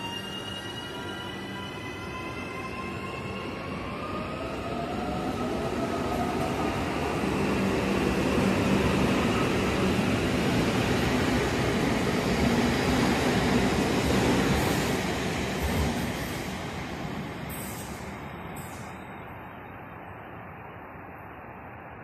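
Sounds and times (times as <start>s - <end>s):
train wheels rumbling on rail: 4.7s - 19.0s.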